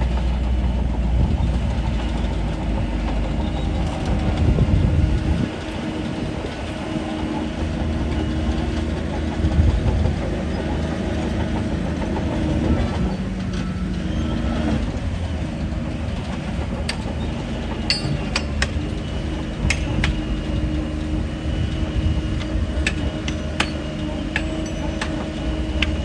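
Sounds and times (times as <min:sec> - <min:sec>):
bulldozer diesel engine running: 0:00.0 - 0:26.0
metallic clinks and clanks: 0:17.9 - 0:18.7.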